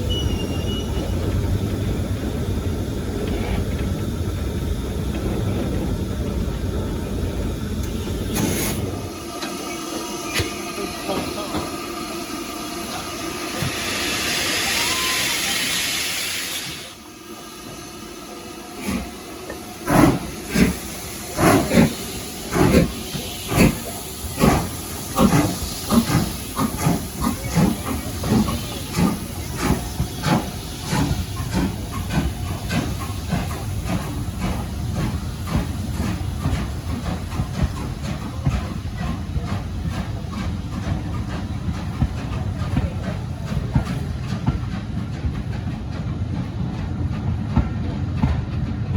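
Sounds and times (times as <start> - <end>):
steam hiss: 7.6 - 44.4
locomotive exhaust beats: 18.8 - 48.9.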